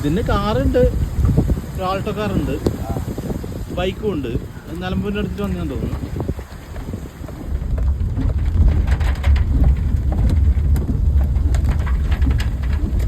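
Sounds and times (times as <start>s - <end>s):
crackles: 0.0s - 13.0s
wind buffeting microphone: 0.0s - 13.0s.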